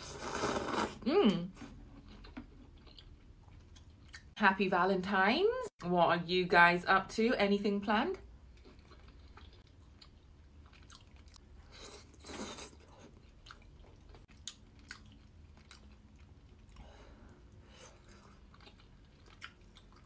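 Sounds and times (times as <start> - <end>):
chewing noodles: 2.0 - 4.3, 8.5 - 16.8, 17.6 - 20.0.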